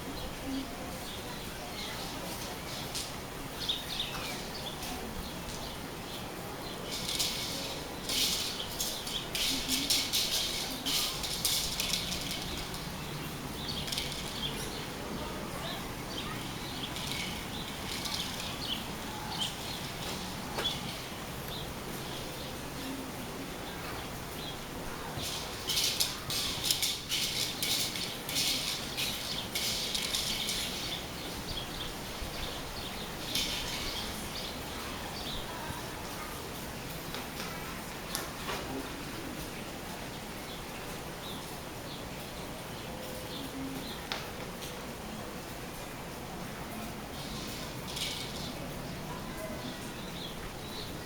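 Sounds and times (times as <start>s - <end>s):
steady rainfall: 0.0s - 51.0s
high-pitched bird chatter: 15.6s - 22.4s, 24.3s - 35.6s.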